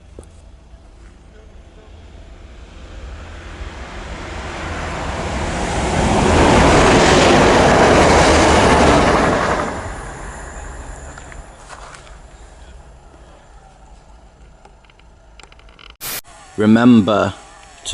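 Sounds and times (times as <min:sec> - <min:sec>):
train passing at speed: 0:00.7 - 0:13.6.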